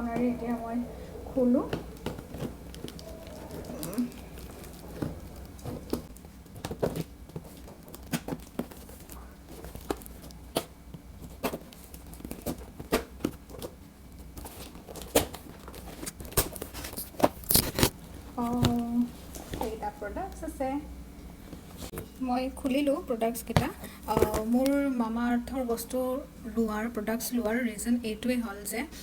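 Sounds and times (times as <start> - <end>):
packaging crinkling and tearing: 1.9 - 18.8.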